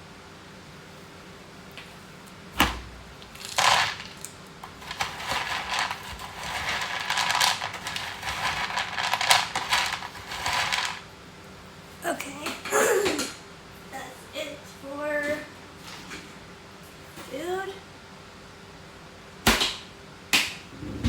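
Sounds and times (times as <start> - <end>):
cat food rattling into dish: 3.2 - 11.0.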